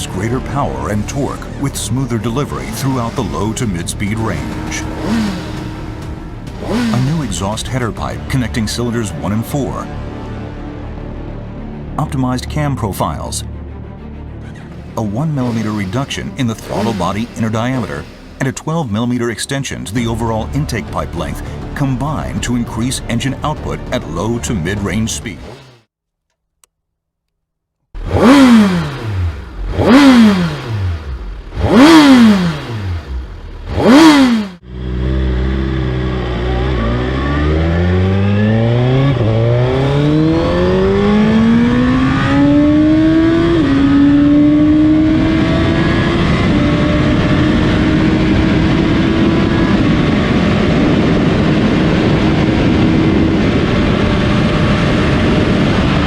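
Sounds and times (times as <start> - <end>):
motorcycle engine revving and accelerating: 0.0 - 10.3, 15.2 - 18.5, 24.9 - 25.9, 28.0 - 56.0.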